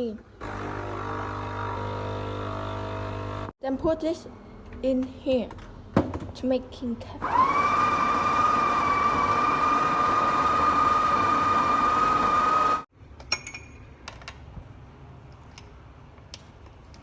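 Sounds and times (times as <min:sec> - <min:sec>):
coffee grinder whining: 0:00.4 - 0:03.5, 0:07.2 - 0:12.9.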